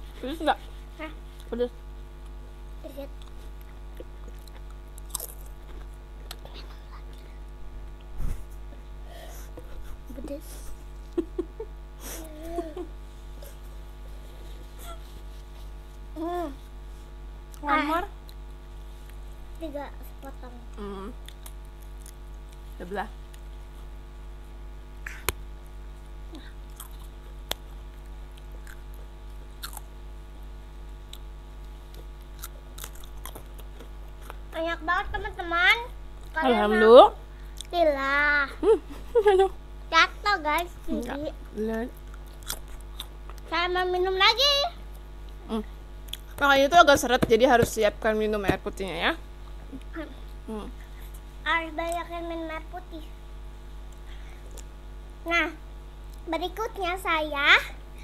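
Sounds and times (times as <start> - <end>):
low electrical hum: 0.0 - 58.0
crunchy chips being chewed: 3.6 - 6.5, 26.7 - 29.9, 31.0 - 34.4, 42.1 - 43.4
crisp snack crunching: 4.3 - 6.4, 31.9 - 34.4.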